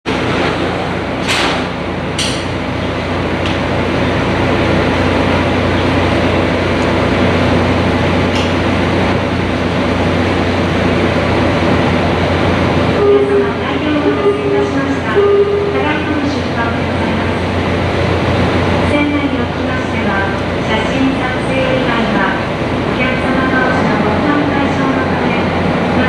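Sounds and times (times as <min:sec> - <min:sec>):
constant rushing noise: 0:00.0 - 0:13.0
boat engine drone: 0:00.0 - 0:26.0.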